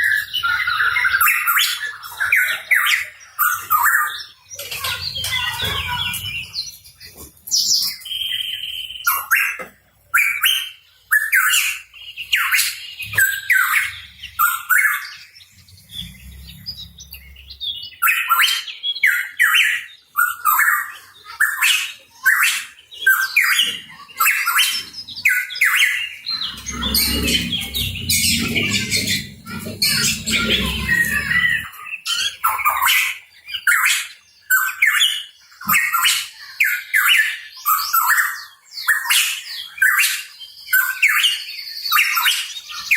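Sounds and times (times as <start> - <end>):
bird squawking: 23.4 - 32.4.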